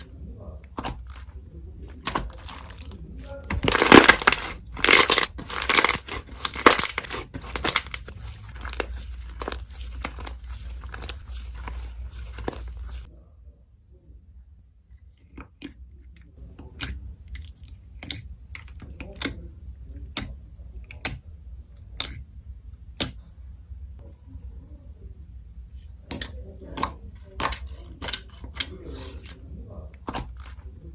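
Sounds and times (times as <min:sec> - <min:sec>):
slime crackling and tearing: 0:02.0 - 0:13.0.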